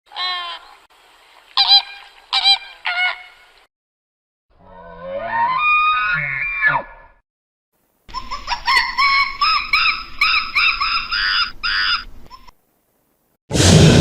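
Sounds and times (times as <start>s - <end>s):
animal calling: 8.1s - 12.6s
loud noisy rushing: 13.5s - 14.0s.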